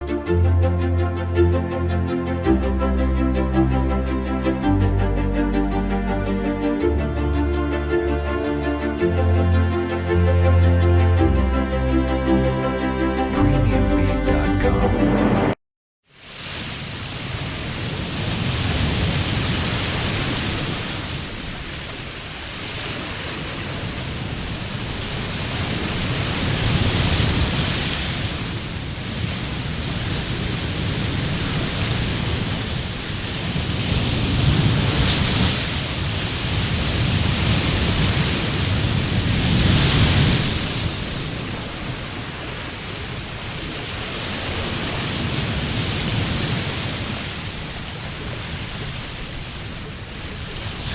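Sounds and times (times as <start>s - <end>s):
ocean waves breaking on sand: 16.2s - 50.9s.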